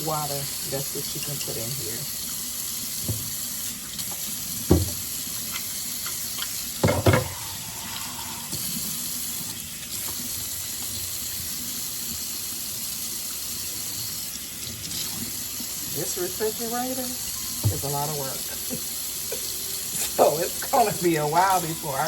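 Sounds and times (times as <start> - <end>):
tap running into a sink: 2.9 - 7.6, 9.5 - 11.5, 17.2 - 19.5.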